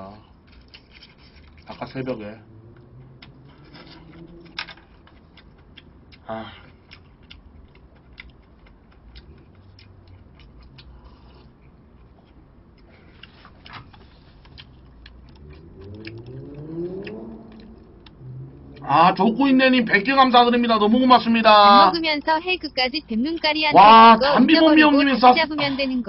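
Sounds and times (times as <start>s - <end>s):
man chewing food: 0.2s - 20.2s.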